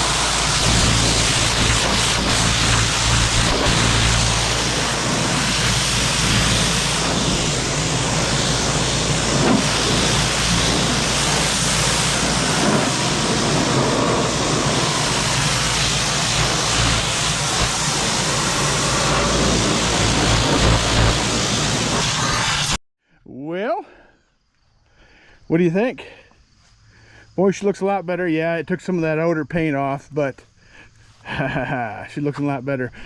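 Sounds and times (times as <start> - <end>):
hiss of water spray: 0.0 - 22.8
pressure washer humming: 0.0 - 22.8.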